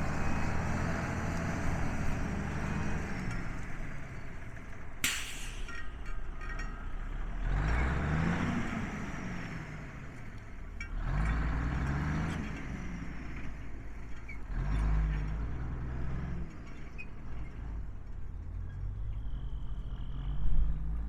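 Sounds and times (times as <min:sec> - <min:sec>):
truck diesel engine running: 0:00.0 - 0:10.7.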